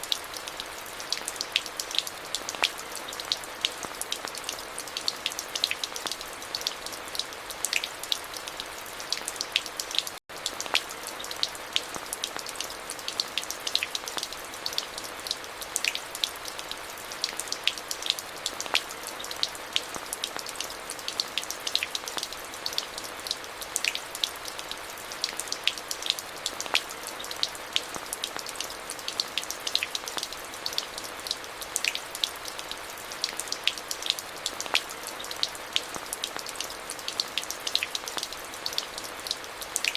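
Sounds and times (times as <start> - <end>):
raindrops ticking on hard surfaces: 0.0 - 39.9.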